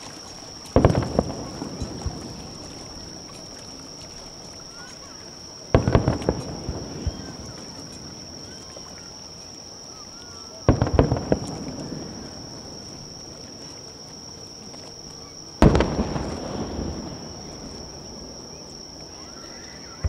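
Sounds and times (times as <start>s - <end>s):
firework booms and cracks: 0.6s - 3.0s, 5.7s - 7.7s, 10.6s - 12.9s, 15.6s - 19.2s.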